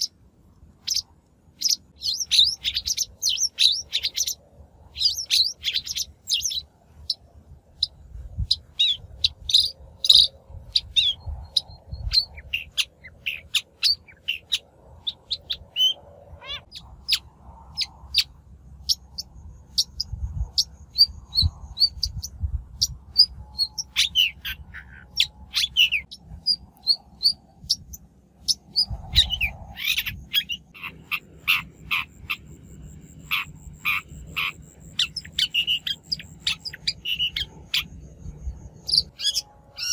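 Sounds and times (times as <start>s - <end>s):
shrike singing sharp chirps: 8.8s - 39.9s
low rumble: 24.6s - 35.5s.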